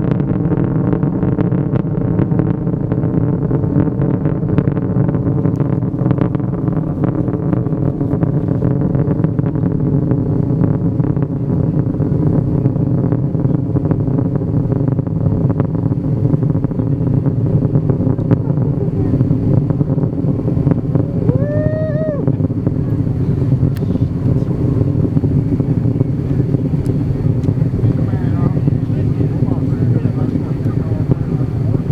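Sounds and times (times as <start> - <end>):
rocket engines rumbling: 0.0 - 31.9
rising and falling cry: 21.1 - 22.4.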